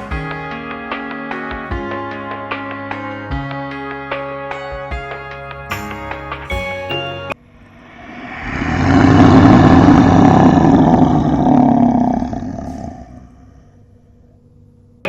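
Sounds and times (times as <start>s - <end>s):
lion roaring: 8.4s - 14.0s.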